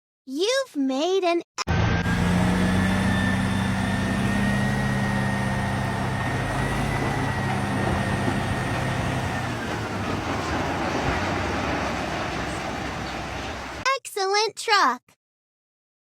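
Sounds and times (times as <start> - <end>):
engine whine: 1.6 - 13.8
truck engine droning: 1.7 - 13.8.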